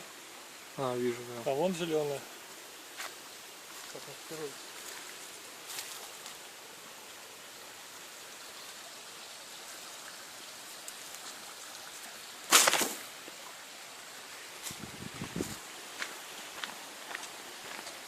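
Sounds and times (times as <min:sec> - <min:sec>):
outdoor background hiss: 0:00.0 - 0:18.0
loud rustle: 0:12.5 - 0:13.1.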